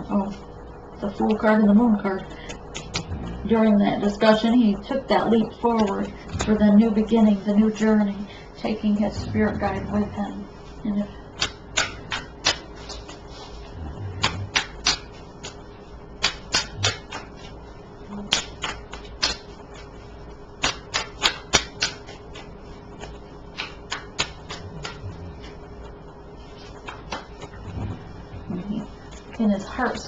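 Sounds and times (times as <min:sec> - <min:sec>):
cards clicking and tapping on table: 0:20.6 - 0:22.4.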